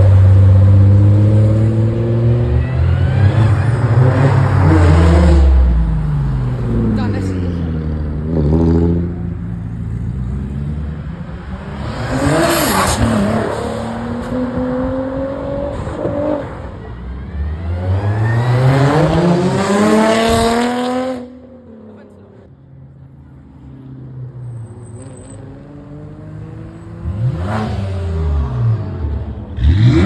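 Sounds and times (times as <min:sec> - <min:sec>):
cars driving past: 0:00.0 - 0:30.0
car accelerating hard: 0:10.6 - 0:16.7.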